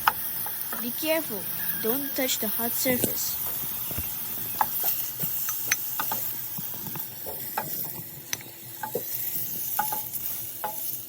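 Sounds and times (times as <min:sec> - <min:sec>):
food sizzling in oil: 0:00.0 - 0:11.0
utensil clicking against pan: 0:04.5 - 0:11.0.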